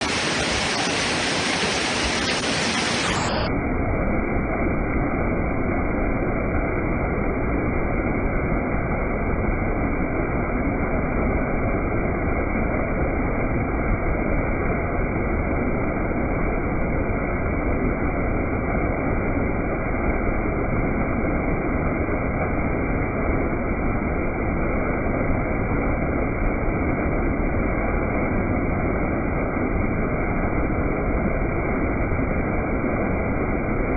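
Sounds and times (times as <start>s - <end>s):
waterfall rushing: 0.0s - 3.5s.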